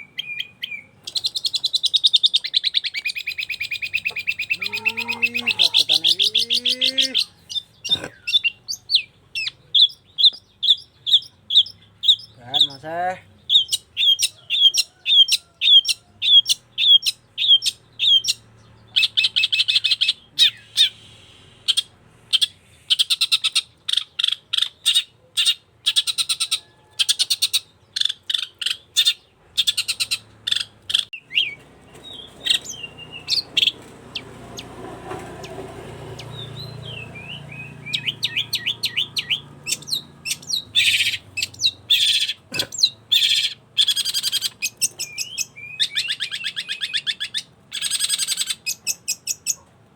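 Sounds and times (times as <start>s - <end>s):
bird chirping and trilling: 0.0s - 34.8s, 35.4s - 49.6s.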